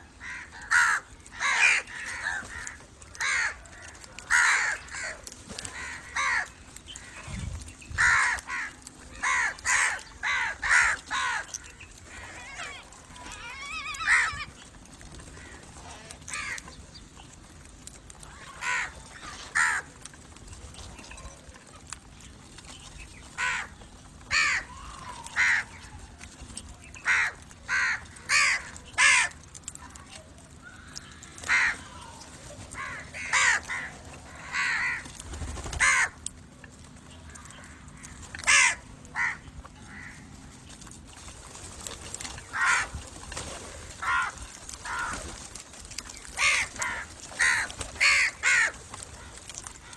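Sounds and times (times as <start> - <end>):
crows cawing: 0.1 - 16.8, 18.2 - 20.0, 23.3 - 26.0, 26.9 - 29.6, 30.6 - 36.4, 37.3 - 40.5, 42.4 - 43.1, 43.9 - 49.9.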